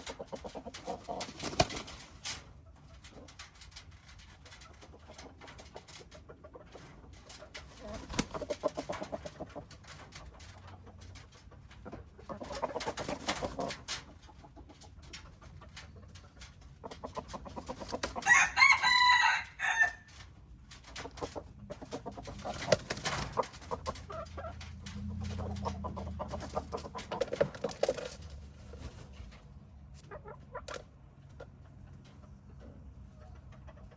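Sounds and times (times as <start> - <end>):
chickens clucking: 0.0 - 33.9
rooster crowing: 18.2 - 20.1.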